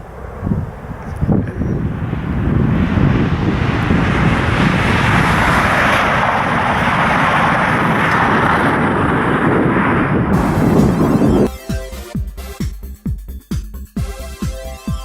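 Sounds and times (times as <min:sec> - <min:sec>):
train passing at speed: 0:00.0 - 0:11.5.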